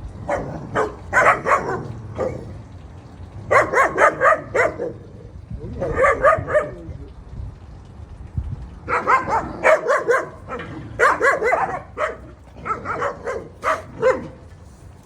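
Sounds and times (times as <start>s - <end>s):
dog barking: 0.2s - 2.5s, 3.5s - 5.1s, 5.8s - 6.8s, 8.9s - 14.5s.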